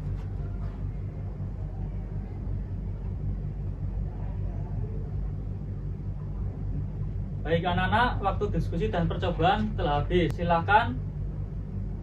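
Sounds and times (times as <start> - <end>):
faint voices murmuring: 0.0 - 7.0.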